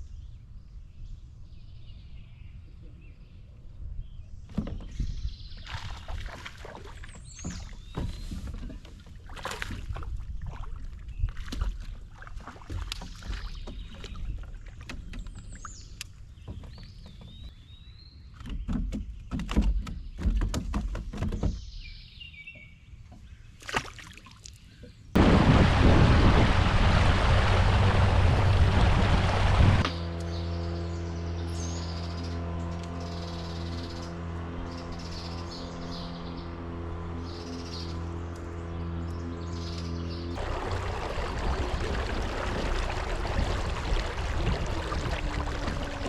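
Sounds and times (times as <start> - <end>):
birds chirping: 0.1 - 8.7, 13.0 - 20.4, 28.4 - 46.0
knocks and thuds on a boat: 4.5 - 17.6, 18.4 - 21.9, 24.8 - 29.9, 40.4 - 46.0
low rumble: 25.2 - 30.0, 32.0 - 46.0.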